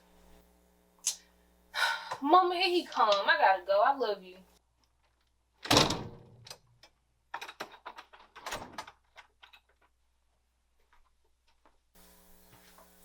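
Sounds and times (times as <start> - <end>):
door thump: 5.6 - 6.4
door knocks and clicks: 5.6 - 6.6.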